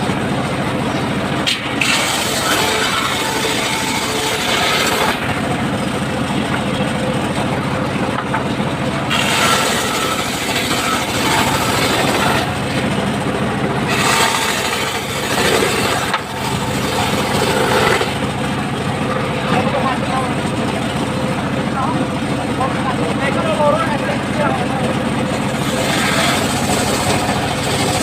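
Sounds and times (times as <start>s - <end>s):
circular saw cutting timber: 0.0s - 7.4s, 8.1s - 21.0s, 22.6s - 28.0s
engine hum: 0.0s - 28.0s.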